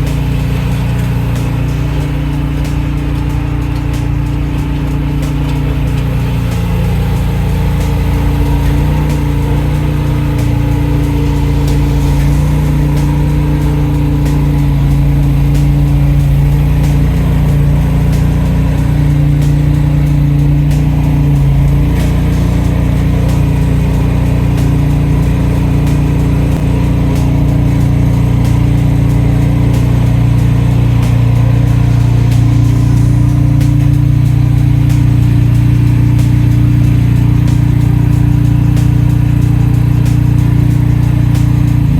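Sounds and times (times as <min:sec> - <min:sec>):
engine running: 0:00.0 - 0:41.9.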